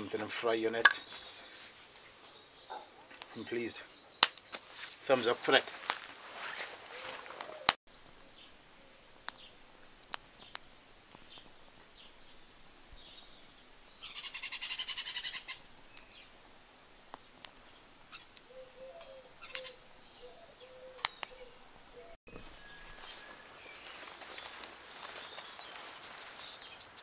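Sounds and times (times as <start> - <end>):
garden birds calling: 0.0 - 27.0
sharp isolated clicks: 4.2 - 5.0, 21.0 - 21.4
bird rapid rattling call: 13.9 - 15.6.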